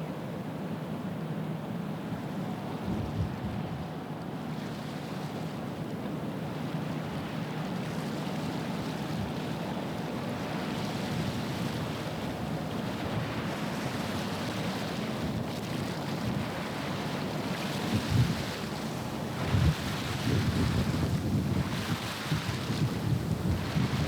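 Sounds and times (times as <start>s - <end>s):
water washing along shore: 7.7s - 24.0s
wind buffeting microphone: 17.8s - 24.0s.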